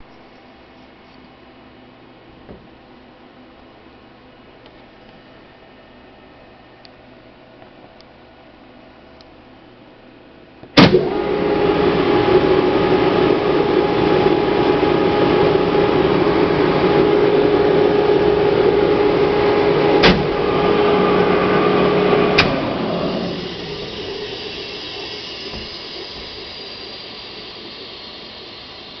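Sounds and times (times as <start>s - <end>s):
compressor click: 10.6s - 28.9s
air compressor humming: 10.8s - 29.0s.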